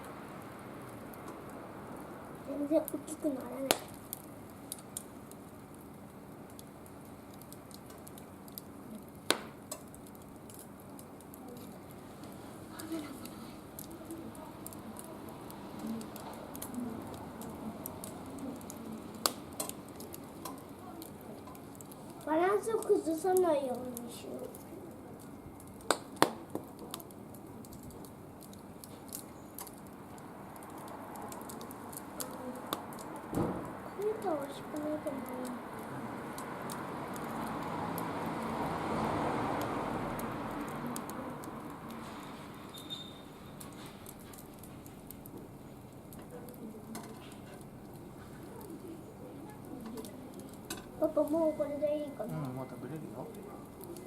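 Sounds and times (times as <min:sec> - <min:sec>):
wood fire crackling: 0:00.0 - 0:54.0
loud pop from fire: 0:03.7 - 0:04.0, 0:09.2 - 0:09.9, 0:19.2 - 0:19.8, 0:25.8 - 0:27.0, 0:32.8 - 0:33.8
sharp loud pop: 0:33.3 - 0:33.6.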